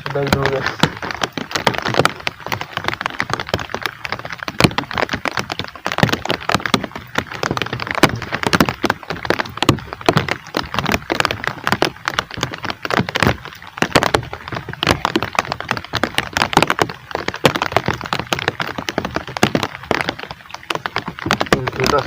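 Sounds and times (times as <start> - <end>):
heavy rain drops pattering: 0.0 - 22.0.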